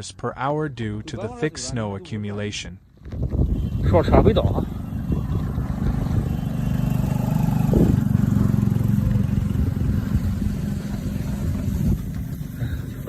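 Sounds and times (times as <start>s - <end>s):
vehicle engine humming: 2.8s - 13.0s.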